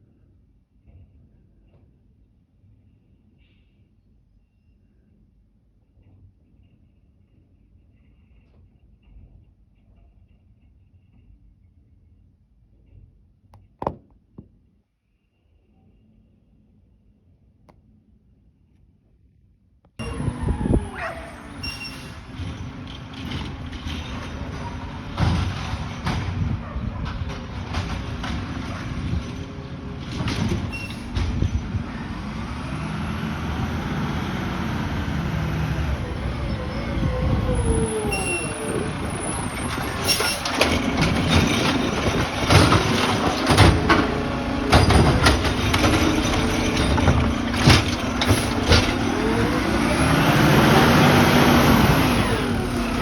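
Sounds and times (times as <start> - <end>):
garbage truck engine revving: 20.0 - 53.0
sharp metal clanks and bangs: 39.6 - 49.7.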